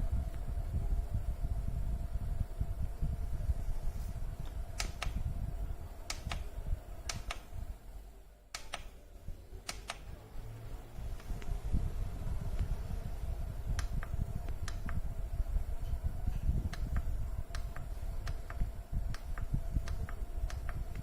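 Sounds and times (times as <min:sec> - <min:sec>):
humidifier fan humming: 0:00.0 - 0:21.0
sharp light clicks: 0:04.8 - 0:05.2, 0:06.1 - 0:07.5, 0:08.5 - 0:09.0, 0:13.7 - 0:15.0, 0:16.7 - 0:21.0.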